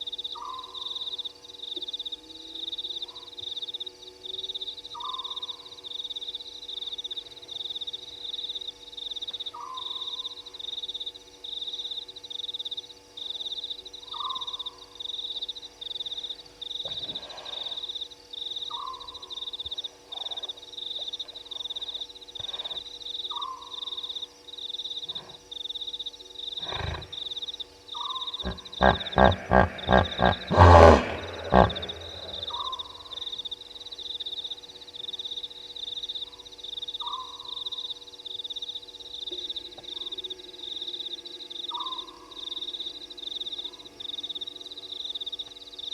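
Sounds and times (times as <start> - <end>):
night insects chirping: 0.0 - 45.9
lion roaring: 16.9 - 17.7, 26.6 - 27.2, 28.4 - 32.9
short falling call: 28.4 - 32.6.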